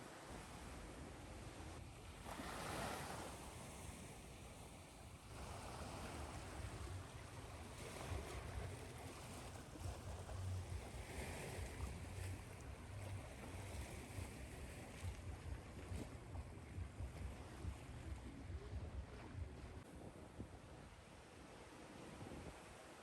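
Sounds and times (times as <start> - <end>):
ocean waves washing: 2.2 - 19.8.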